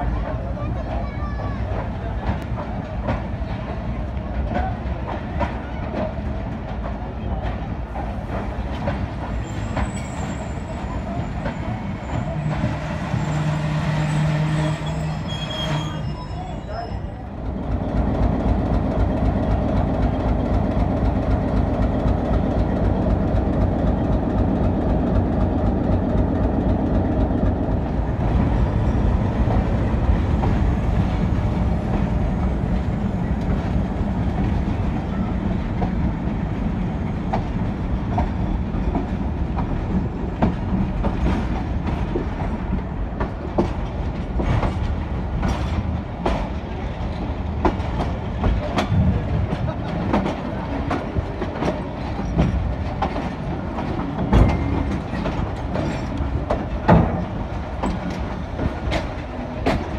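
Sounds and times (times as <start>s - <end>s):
wheels clicking over rail joints: 37.2s - 59.9s.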